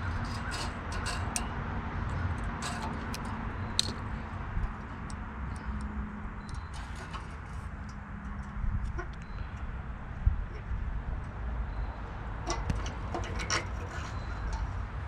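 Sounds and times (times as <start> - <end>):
metal clicks of hand tools: 0.2 - 9.3, 12.5 - 14.7.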